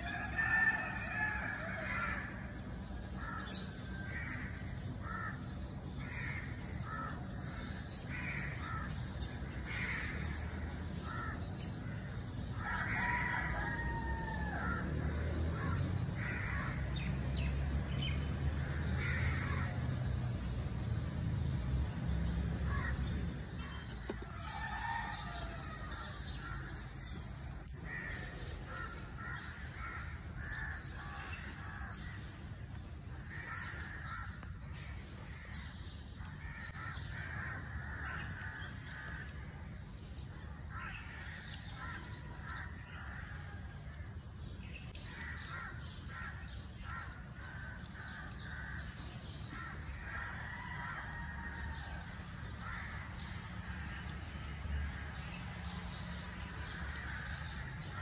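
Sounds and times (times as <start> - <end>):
birds calling: 0.0 - 58.0
steady low rumble: 14.0 - 51.2.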